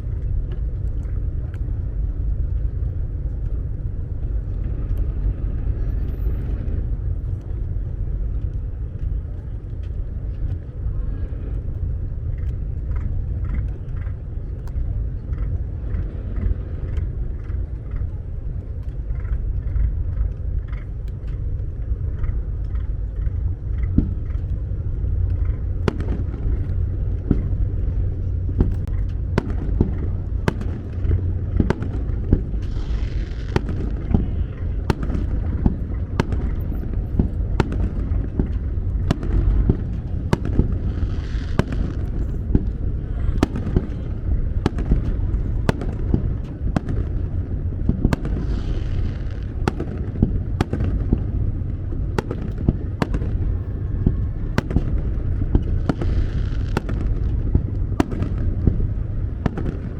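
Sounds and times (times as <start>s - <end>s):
fireworks booming: 24.0s - 59.9s
fireworks fizzing crackle: 24.0s - 59.9s
fireworks bangs: 25.8s - 59.9s.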